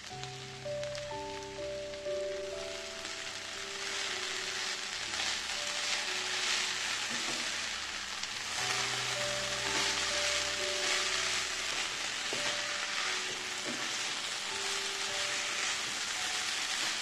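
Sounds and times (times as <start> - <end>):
vegetables sizzling in hot oil: 0.0 - 17.0
wooden spatula stirring: 3.8 - 17.0.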